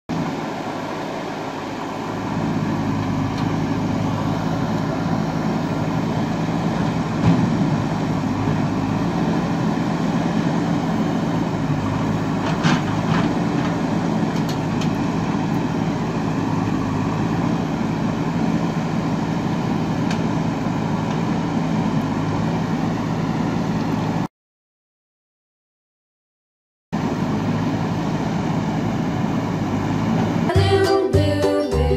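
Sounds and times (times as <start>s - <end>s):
diesel engine revving: 0.1s - 24.3s, 27.0s - 31.9s.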